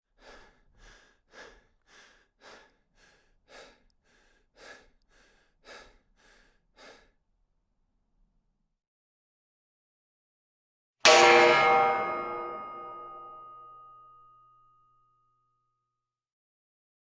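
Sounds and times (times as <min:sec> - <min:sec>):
rhythmic breathing: 0:00.2 - 0:07.2.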